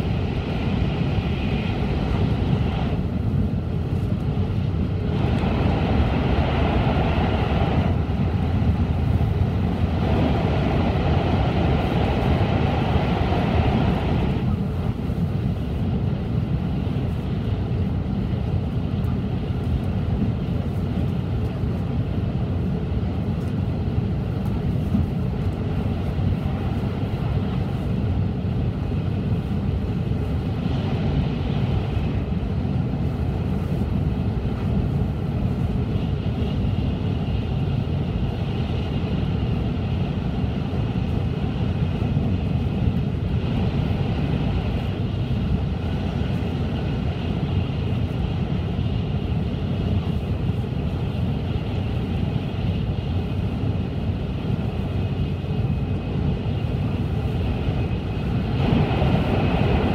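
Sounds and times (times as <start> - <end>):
train cabin rumble: 0.0 - 59.9
tunnel roar: 0.0 - 59.9.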